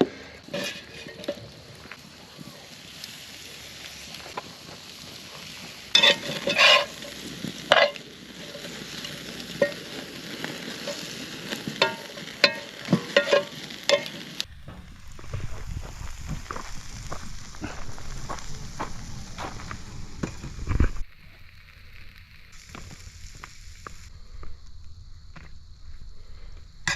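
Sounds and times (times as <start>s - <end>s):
food sizzling in a pan: 0.0s - 24.1s
metal utensil scraping cookware: 0.5s - 1.4s, 5.9s - 8.8s, 11.8s - 14.3s.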